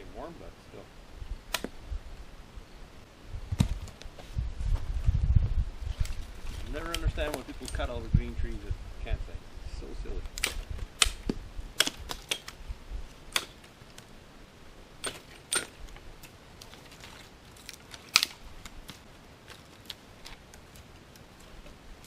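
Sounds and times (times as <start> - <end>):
dry twigs snapping: 5.9 - 7.8, 15.0 - 21.8.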